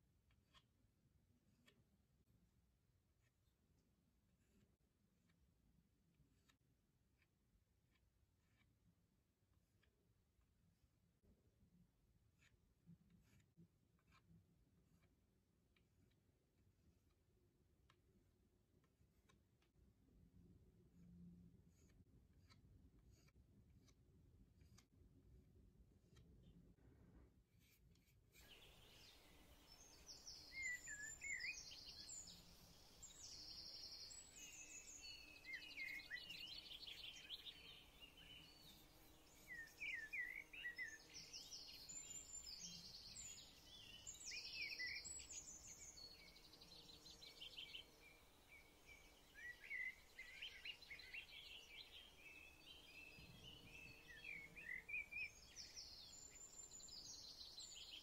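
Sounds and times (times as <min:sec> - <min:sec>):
birds chirping and twittering: 0:28.4 - 0:58.0.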